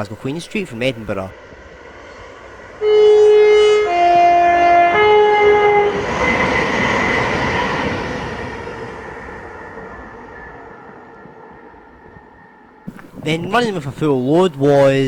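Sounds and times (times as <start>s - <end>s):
train rushing past: 0.0s - 11.6s
train two-tone horn: 2.8s - 7.9s.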